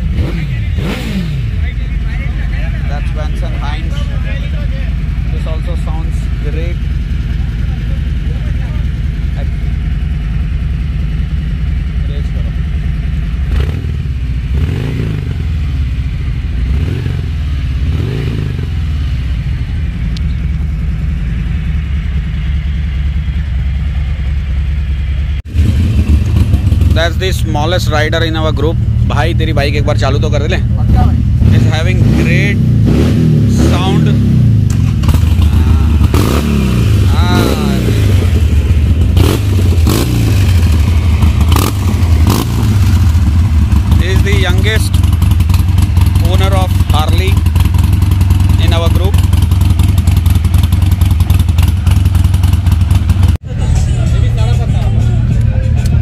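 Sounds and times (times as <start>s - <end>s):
motorcycle engine idling: 0.0s - 33.0s, 34.2s - 56.0s
motorcycle throttle blips: 12.6s - 27.4s, 30.8s - 53.4s.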